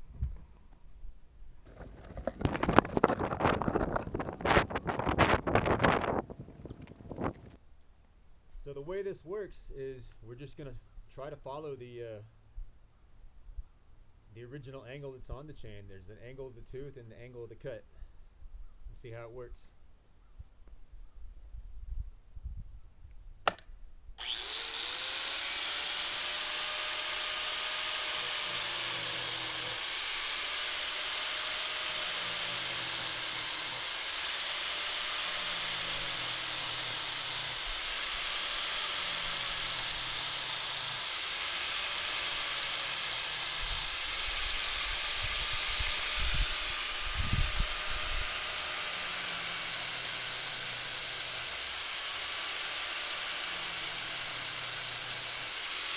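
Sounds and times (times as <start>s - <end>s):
angle grinder grinding metal: 1.7s - 7.6s, 24.2s - 55.9s.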